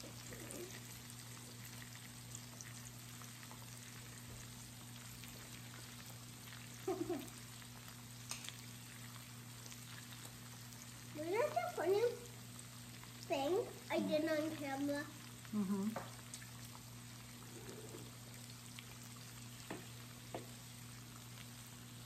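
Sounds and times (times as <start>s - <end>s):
faint electrical hum: 0.0s - 22.0s
meat sizzling on a griddle: 0.0s - 22.0s
person murmuring: 15.6s - 16.0s.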